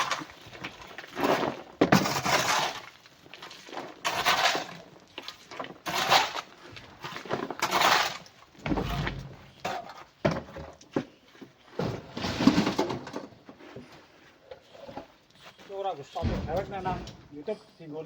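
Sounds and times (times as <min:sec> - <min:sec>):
rock and coral clattering: 0:00.0 - 0:13.7
heavy low thud: 0:08.6 - 0:09.6, 0:16.2 - 0:17.3.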